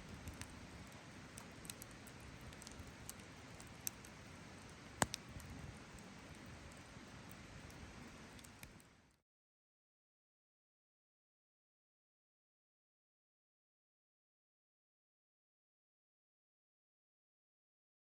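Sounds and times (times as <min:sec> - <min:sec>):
campfire crackling and popping: 0:00.0 - 0:09.1.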